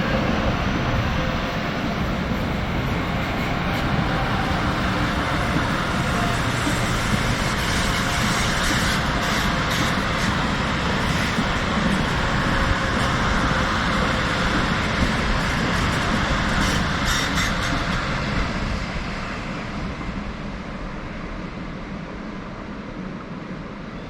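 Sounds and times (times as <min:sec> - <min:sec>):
train wheel and rail noise: 0:00.0 - 0:24.0
train clicks: 0:00.1 - 0:18.5.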